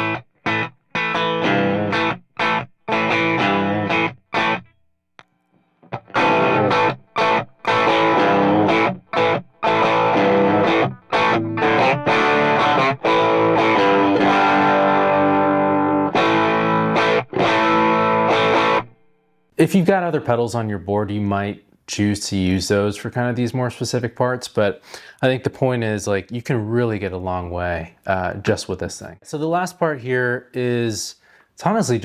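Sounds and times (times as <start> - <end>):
overdriven electric guitar chords: 0.0 - 19.6.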